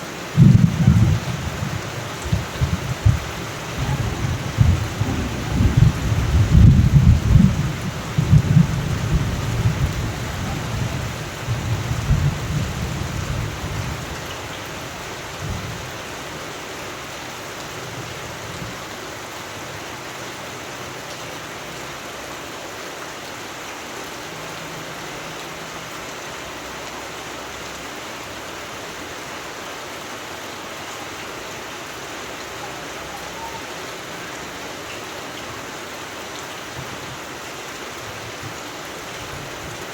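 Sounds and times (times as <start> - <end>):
steady rain: 0.0 - 39.9
thunder rumbling: 0.3 - 15.8.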